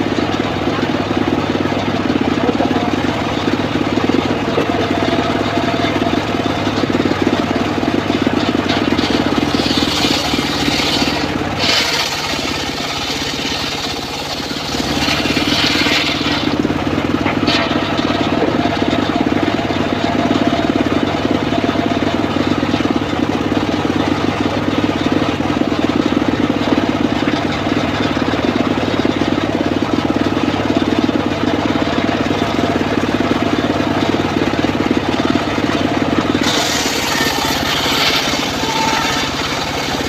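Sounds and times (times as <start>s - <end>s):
sawmill engine running: 0.0s - 40.0s
saw cutting log: 1.2s - 20.6s, 33.0s - 40.0s.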